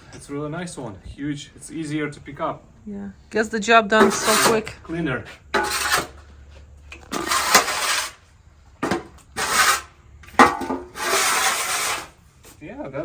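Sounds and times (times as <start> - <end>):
shovel scraping wood shavings: 4.0 - 4.8, 5.6 - 6.4, 7.0 - 8.2, 8.8 - 12.2.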